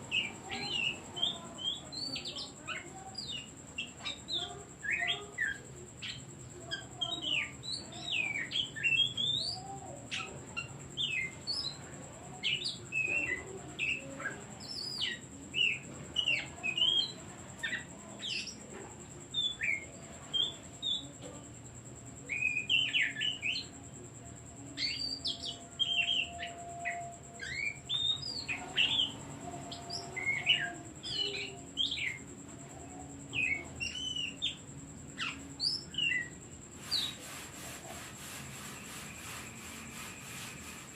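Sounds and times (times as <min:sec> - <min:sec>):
steady high-pitched whine: 0:00.0 - 0:40.9
bird singing whistled chattering notes: 0:24.7 - 0:32.3, 0:33.1 - 0:40.9.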